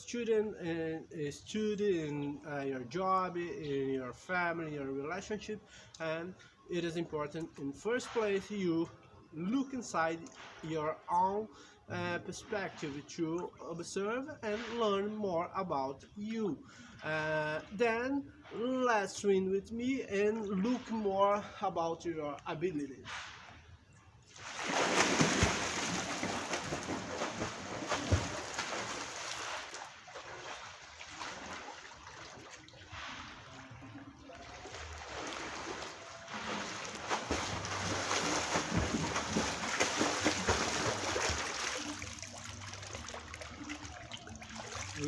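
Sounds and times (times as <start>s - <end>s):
water splashing from swimming: 24.2s - 45.0s.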